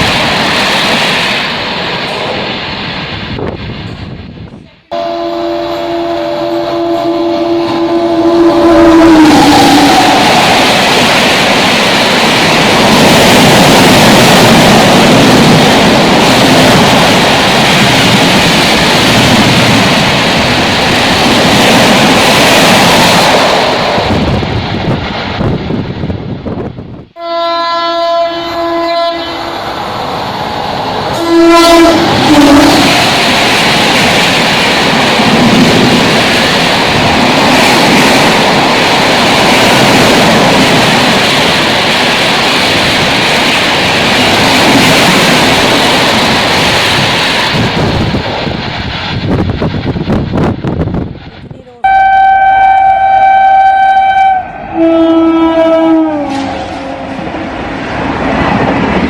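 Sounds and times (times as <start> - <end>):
train rushing noise: 0.0 - 59.0
locomotive horn blasts: 4.9 - 9.9, 27.2 - 29.6, 31.2 - 33.0, 51.8 - 57.2.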